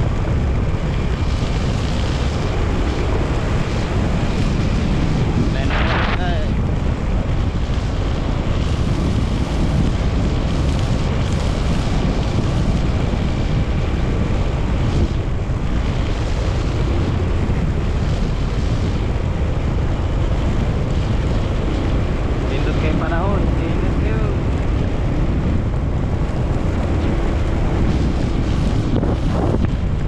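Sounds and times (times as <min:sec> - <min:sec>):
motorcycle engine running: 0:00.0 - 0:30.0
wind rushing over microphone: 0:00.0 - 0:30.0.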